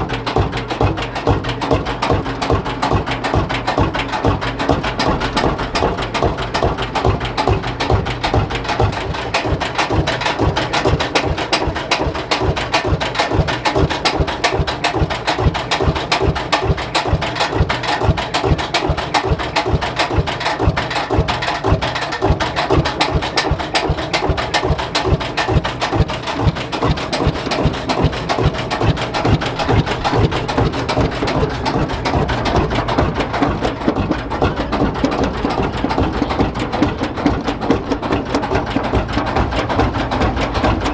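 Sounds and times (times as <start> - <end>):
tractor engine idling knocks: 0.0 - 40.9.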